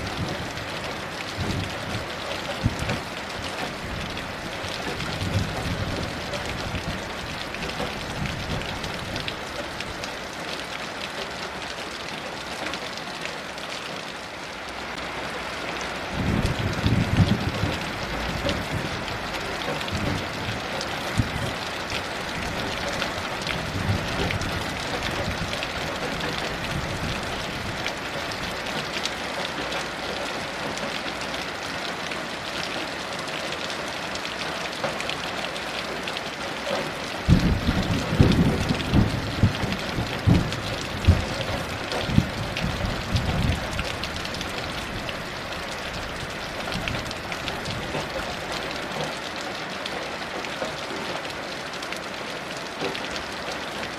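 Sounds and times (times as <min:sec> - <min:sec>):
heavy rain falling: 0:00.0 - 0:53.9
thunder rumbling: 0:16.1 - 0:28.5, 0:37.3 - 0:45.2.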